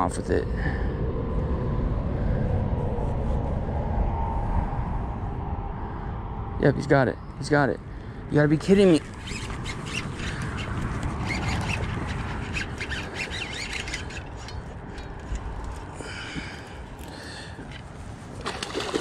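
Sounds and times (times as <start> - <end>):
birds calling: 8.8 - 17.8.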